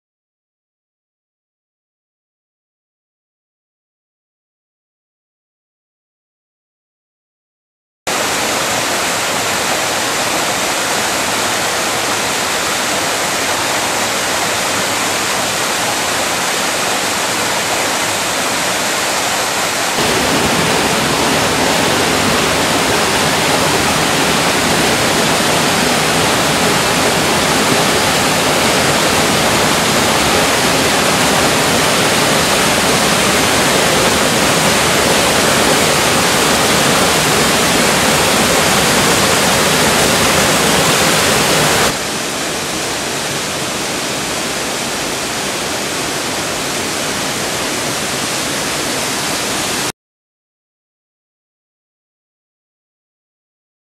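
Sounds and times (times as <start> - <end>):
waterfall rushing: 8.1 - 49.9.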